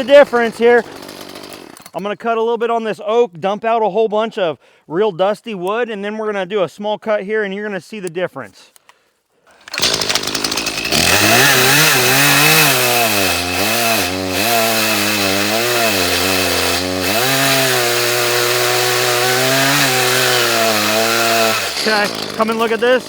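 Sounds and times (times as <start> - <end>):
chainsaw cutting wood: 0.0 - 2.0, 9.5 - 23.0.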